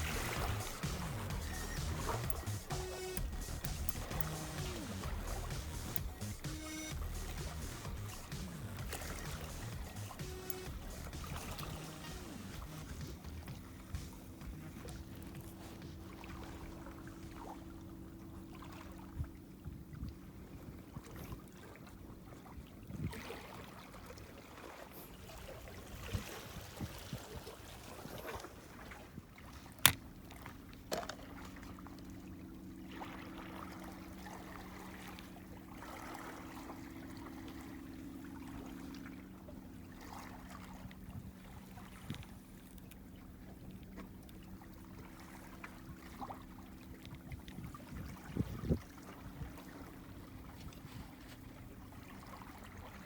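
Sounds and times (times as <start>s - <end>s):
water trickling: 0.0s - 20.1s
low mechanical hum: 0.0s - 23.1s, 28.7s - 53.0s.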